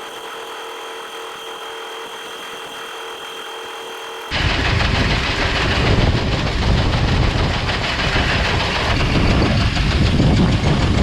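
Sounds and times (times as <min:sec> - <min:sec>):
machinery rattling and clattering: 0:04.3 - 0:11.0
tractor engine running: 0:04.3 - 0:11.0.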